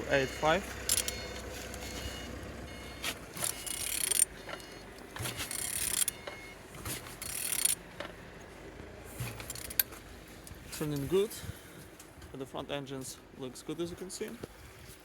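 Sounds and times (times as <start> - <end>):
engine rasping turned by hand: 0.0 - 11.4
mechanical clicks and knocks: 0.8 - 2.1, 2.7 - 8.2, 9.2 - 10.0.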